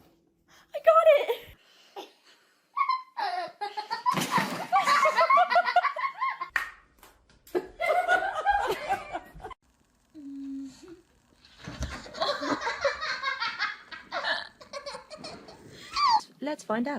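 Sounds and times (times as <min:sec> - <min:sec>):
people laughing hard: 0:02.8 - 0:06.5, 0:07.6 - 0:09.6, 0:12.0 - 0:16.2.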